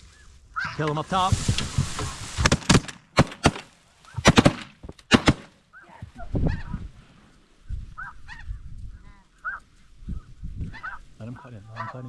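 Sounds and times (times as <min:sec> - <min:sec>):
shotgun shots: 0:01.2 - 0:05.6
geese honking: 0:08.0 - 0:09.8, 0:10.7 - 0:12.0.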